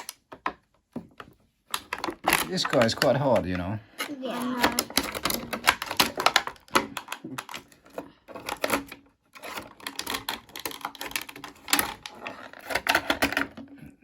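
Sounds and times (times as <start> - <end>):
plastic packaging crackling: 1.7 - 3.6, 8.4 - 13.2.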